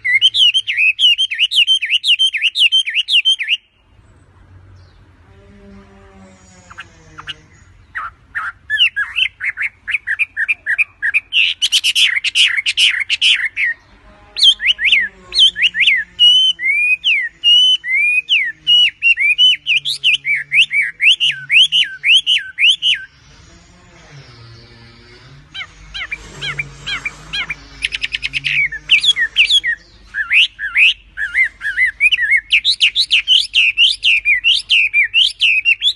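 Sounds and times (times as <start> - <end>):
bird calling with sweeping notes: 0.0 - 4.0, 4.6 - 35.9.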